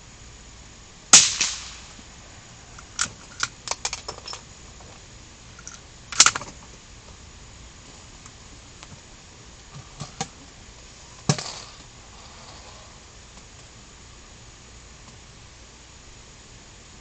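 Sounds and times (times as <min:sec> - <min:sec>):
rifle shots: 0:01.1 - 0:02.0
metallic clicks: 0:05.6 - 0:06.5.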